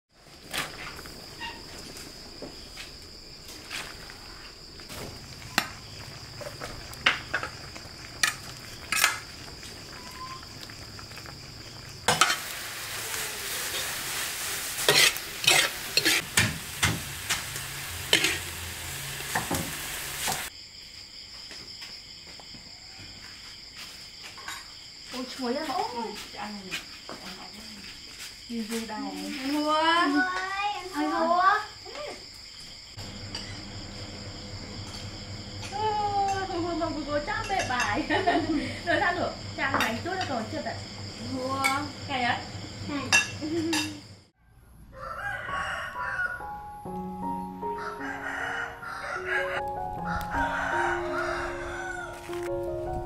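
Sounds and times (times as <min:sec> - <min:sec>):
insect trill: 0:00.2 - 0:53.0
shrimp sizzling in a wok: 0:04.8 - 0:20.5, 0:33.0 - 0:44.3, 0:50.1 - 0:52.5
utensil scraping in a pan: 0:11.2 - 0:20.5.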